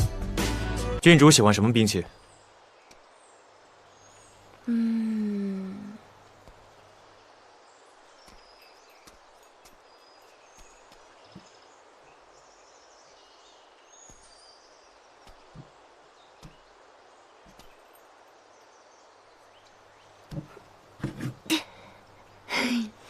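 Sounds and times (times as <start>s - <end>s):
steady hiss: 1.2s - 23.0s
bird chirps: 7.2s - 20.6s.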